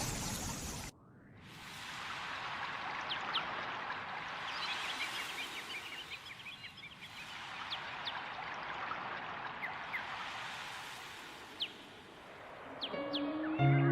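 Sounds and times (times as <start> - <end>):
stream running water: 0.0 - 0.9, 1.5 - 13.6
small birds chirping: 3.0 - 10.2, 12.7 - 13.9.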